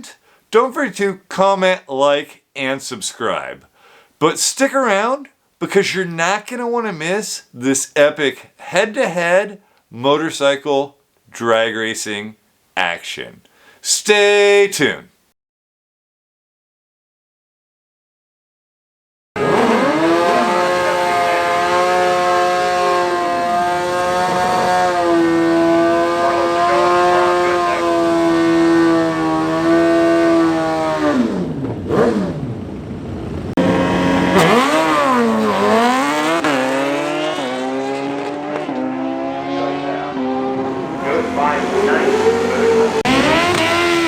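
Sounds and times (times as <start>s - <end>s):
motorcycle engine revving: 19.4s - 44.0s.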